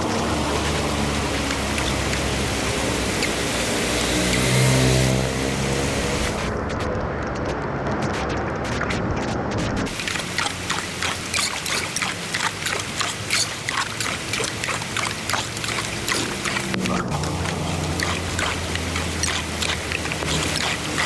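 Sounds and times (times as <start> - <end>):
water pouring into a storm drain: 0.0 - 6.7, 9.9 - 21.0.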